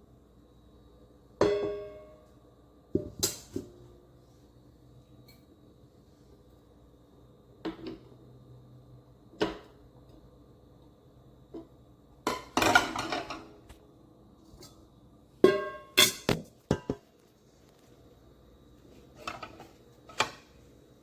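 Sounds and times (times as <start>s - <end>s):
metal kitchenware clattering: 12.3s - 13.5s, 15.4s - 17.0s.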